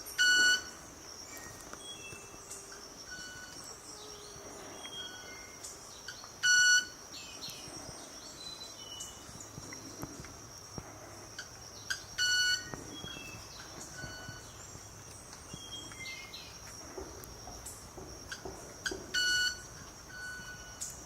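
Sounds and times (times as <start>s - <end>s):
high insect hum: 0.0s - 21.0s
bird chirps: 11.7s - 16.7s.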